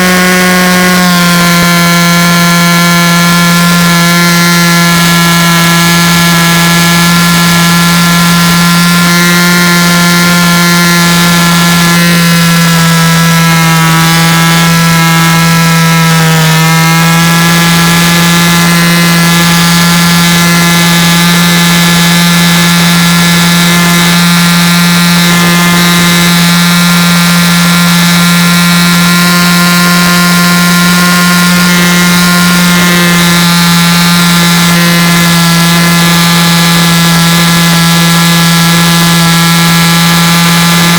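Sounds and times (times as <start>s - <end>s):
loud machine hum: 0.0s - 40.9s.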